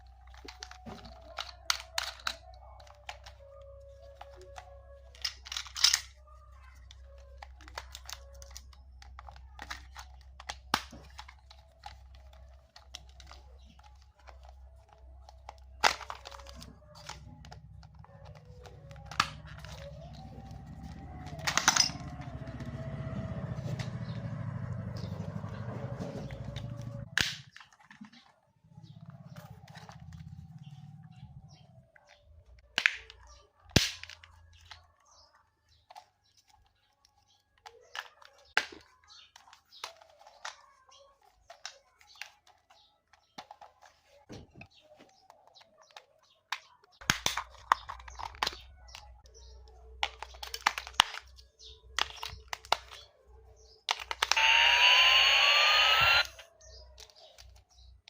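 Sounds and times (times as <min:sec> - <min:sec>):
plastic clicks and handling knocks: 0:00.0 - 0:22.8, 0:35.7 - 0:53.2
toy motor buzzing: 0:54.0 - 0:56.5.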